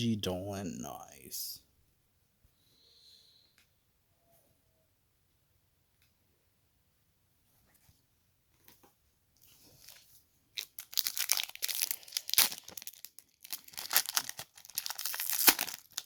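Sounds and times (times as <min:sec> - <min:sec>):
foil wrapper crinkling: 0:09.6 - 0:16.0.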